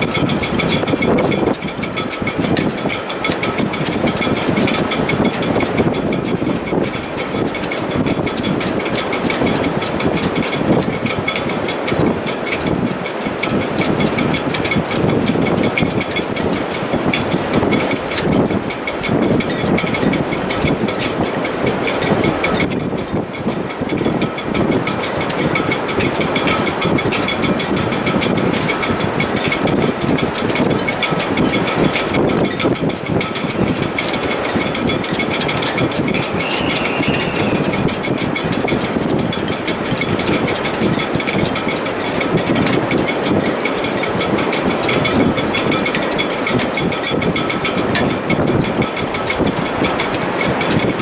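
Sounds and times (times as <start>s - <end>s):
fast high ticking: 0.0s - 51.0s
rapid even clicking: 0.0s - 51.0s
wind rushing through rigging: 0.0s - 51.0s
faint whistling tones: 36.2s - 37.9s.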